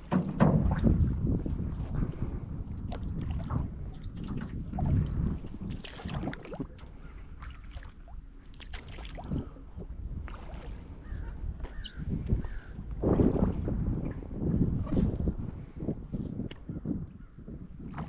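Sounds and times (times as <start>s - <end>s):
wind on microphone: 0.0s - 18.0s
paddle splashes: 2.8s - 11.8s.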